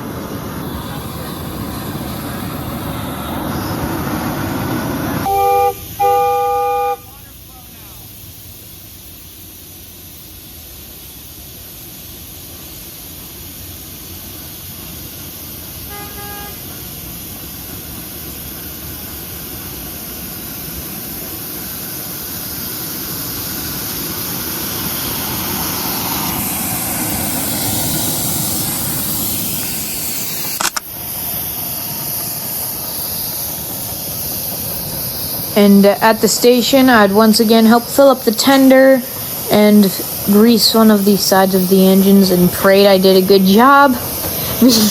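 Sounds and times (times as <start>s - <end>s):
steam locomotive hiss and rumble: 0.0s - 44.9s
steam whistle toot: 5.2s - 7.2s, 15.8s - 16.8s
sharp click: 30.4s - 30.9s.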